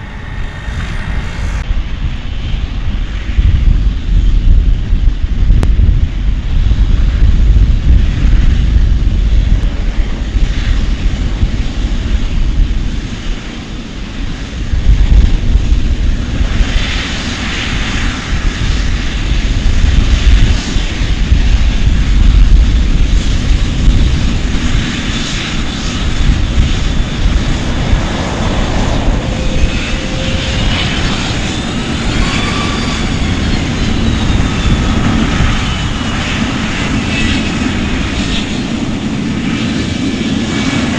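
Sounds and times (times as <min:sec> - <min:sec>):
engine whine rising and falling: 0:00.0 - 0:02.2, 0:25.6 - 0:40.9
airplane engines rumbling: 0:00.0 - 0:40.9.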